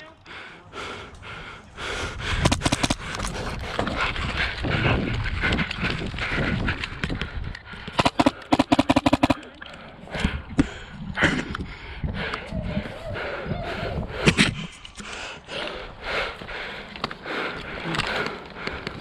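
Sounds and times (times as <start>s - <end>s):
movement in the field: 0.0s - 19.0s
airsoft guns firing: 2.4s - 3.0s, 8.0s - 9.4s.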